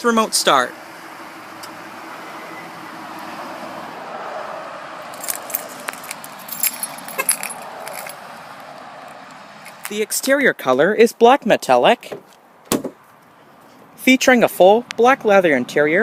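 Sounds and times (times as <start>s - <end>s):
car engine idling: 0.0s - 9.9s
keys jingling: 5.1s - 8.3s, 9.1s - 9.9s.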